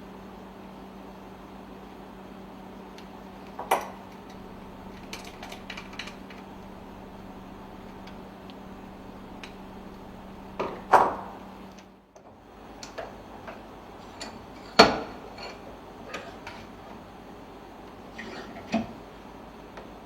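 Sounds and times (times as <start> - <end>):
low steady hum: 3.7 - 11.5.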